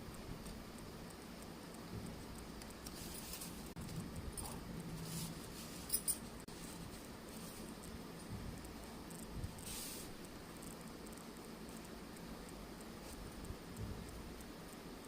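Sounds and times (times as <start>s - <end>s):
sharp clicks: 8.6s - 14.8s.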